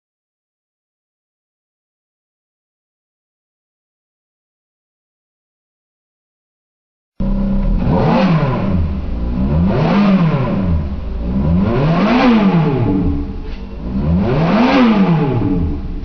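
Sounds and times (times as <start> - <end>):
car engine revving in neutral: 7.2 - 16.0.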